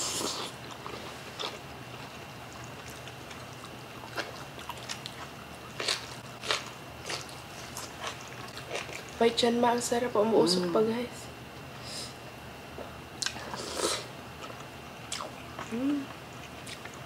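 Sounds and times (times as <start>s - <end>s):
people chewing food: 0.0s - 9.2s, 12.7s - 17.0s
wet mouth smacks: 13.2s - 13.4s.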